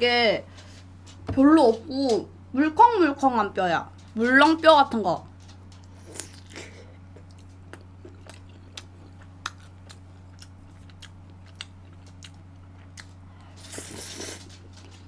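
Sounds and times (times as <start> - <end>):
steady low hum: 0.0 - 15.0
wet chewing clicks and smacks: 5.7 - 13.2.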